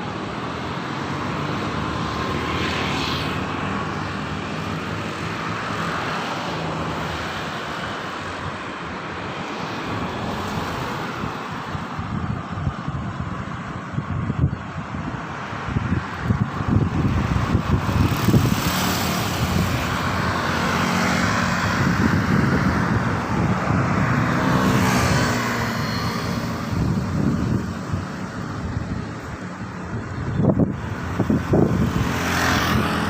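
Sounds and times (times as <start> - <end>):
wind buffeting microphone: 0.0 - 33.0
vehicle passing: 15.8 - 33.0.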